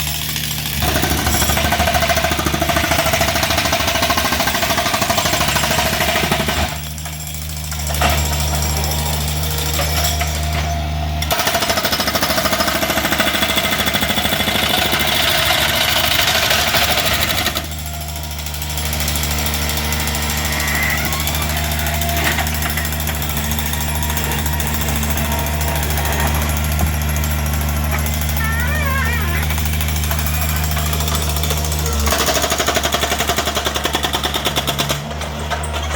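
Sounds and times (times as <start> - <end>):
concrete breaker hammering: 0.0 - 35.9
steady engine hum: 12.4 - 35.2.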